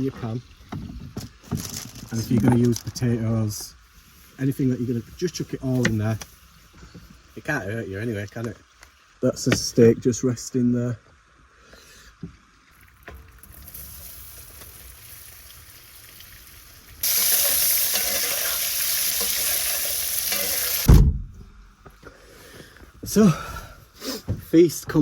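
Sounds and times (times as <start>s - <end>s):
potatoes sizzling in a pan: 13.4s - 20.9s
thump: 20.9s - 21.6s.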